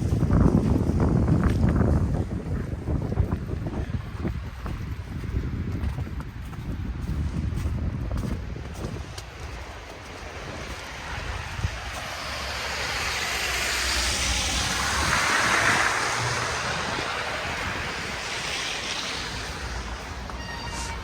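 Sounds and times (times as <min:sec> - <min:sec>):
tyres hissing through slush: 0:09.6 - 0:21.0.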